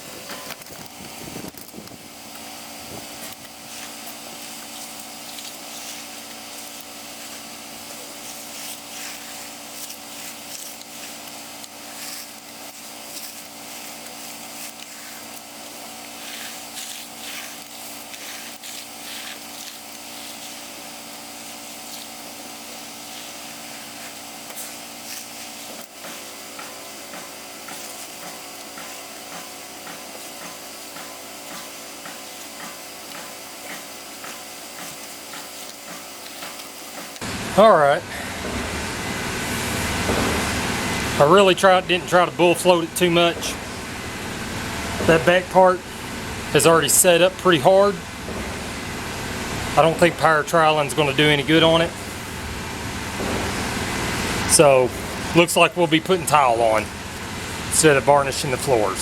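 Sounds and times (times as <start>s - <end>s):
steady mechanical hum: 0.0s - 59.0s
trowel scraping wet concrete: 1.5s - 37.2s, 49.7s - 52.2s, 53.4s - 59.0s.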